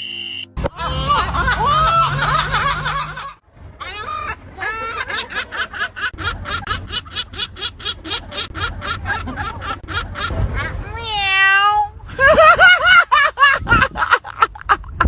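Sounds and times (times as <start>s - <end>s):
gull laughing call: 0.6s - 10.7s.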